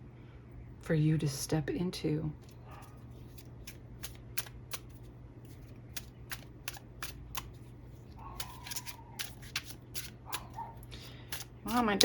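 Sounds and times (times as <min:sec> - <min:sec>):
cards being shuffled: 0:02.4 - 0:12.0.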